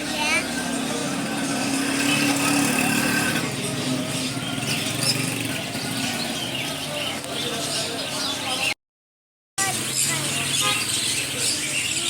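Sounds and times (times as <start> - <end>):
vehicle engine humming: 0.0 - 8.1
street traffic: 0.0 - 8.8, 9.6 - 12.0.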